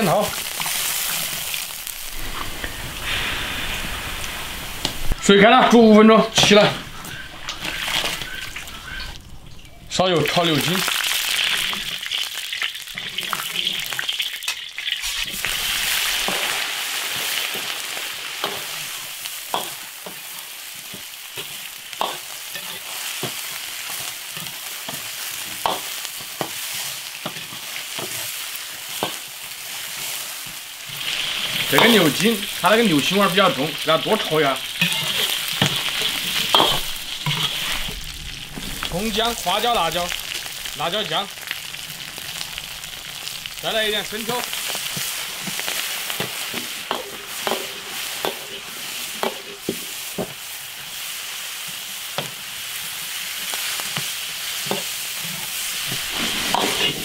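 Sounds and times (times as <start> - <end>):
hot oil sizzling in a wok: 0.0 - 57.0
metal ladle scraping wok: 30.8 - 39.0, 54.6 - 57.0.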